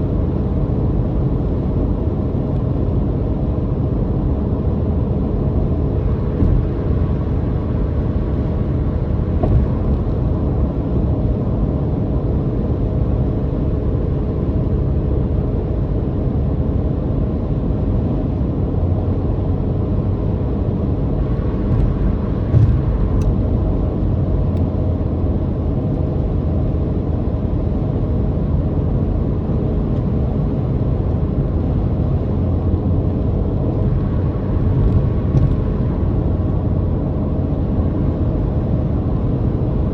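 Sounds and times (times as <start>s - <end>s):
road rumble: 0.0s - 39.9s
car bumps: 6.3s - 7.1s, 9.2s - 10.5s, 21.5s - 23.6s, 34.6s - 36.1s.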